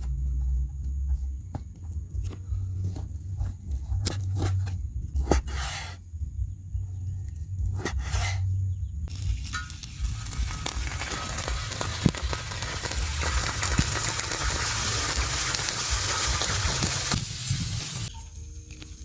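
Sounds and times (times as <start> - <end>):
patties sizzling on griddle: 9.1 - 18.1.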